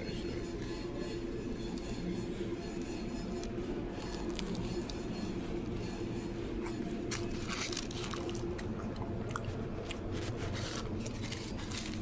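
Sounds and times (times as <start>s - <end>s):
low background hum: 0.0s - 12.0s
person chewing food: 6.6s - 12.0s.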